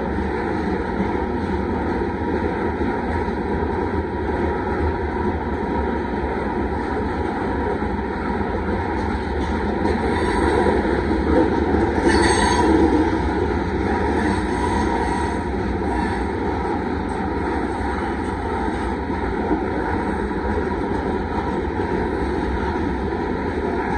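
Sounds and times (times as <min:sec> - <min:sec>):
train wheels rumbling on rails: 0:00.0 - 0:23.9.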